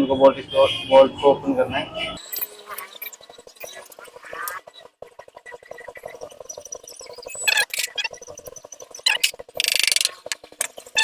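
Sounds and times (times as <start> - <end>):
ratchet wrench clicking: 9.2 - 10.7.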